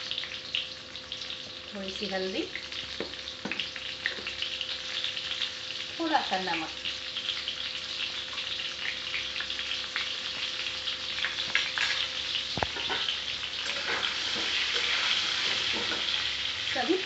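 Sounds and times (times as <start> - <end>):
food sizzling in hot oil: 0.0 - 17.0
metal spatula scraping pan: 12.8 - 16.3.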